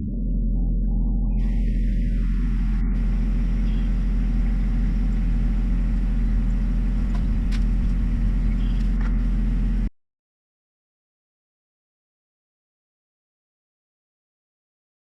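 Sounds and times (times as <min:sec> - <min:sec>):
tractor diesel engine running: 0:00.0 - 0:09.9.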